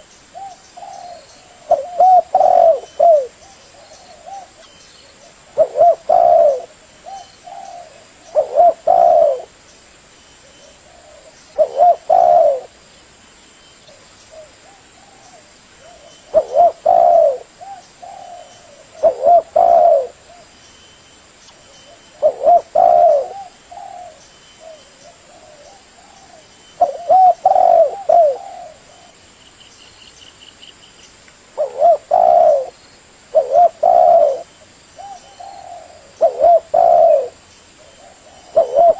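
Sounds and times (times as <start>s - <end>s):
dove cooing: 0.0s - 9.6s, 10.5s - 12.8s, 14.3s - 20.6s, 21.9s - 29.2s, 31.6s - 38.9s.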